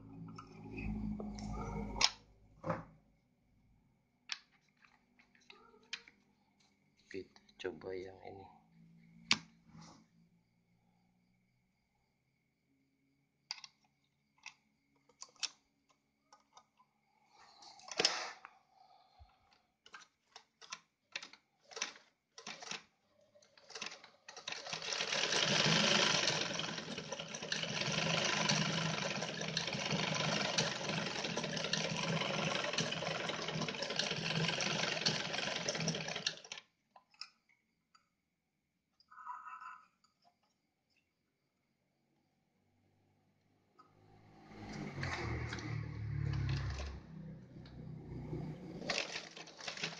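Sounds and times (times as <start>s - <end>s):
sewing machine clicks and knocks: 19.8s - 22.9s, 23.5s - 37.4s, 48.8s - 49.9s
sewing machine sewing: 23.6s - 36.7s, 44.5s - 47.2s, 48.0s - 49.9s.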